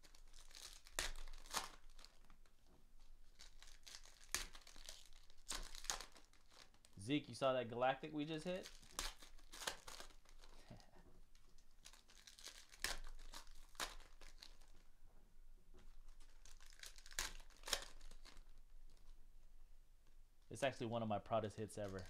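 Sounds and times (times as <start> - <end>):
card pack wrappers crinkling: 0.0 - 7.2, 7.8 - 14.9, 15.8 - 19.2, 21.4 - 22.0.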